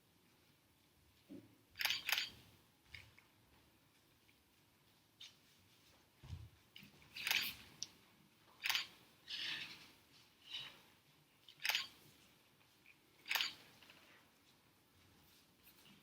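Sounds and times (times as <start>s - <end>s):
soft rustles: 2.8s - 8.6s, 9.2s - 16.0s.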